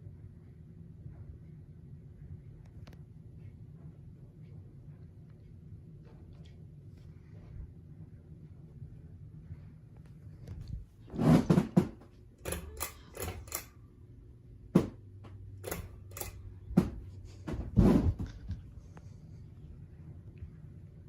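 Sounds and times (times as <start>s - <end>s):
faint low hum: 0.0s - 21.0s
irregular clicks and knocks: 11.5s - 13.8s, 14.8s - 17.7s.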